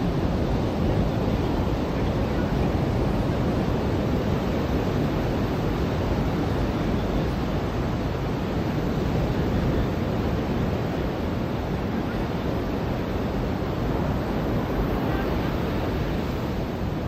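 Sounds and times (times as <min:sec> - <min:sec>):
ocean waves breaking on shore: 0:00.0 - 0:17.0.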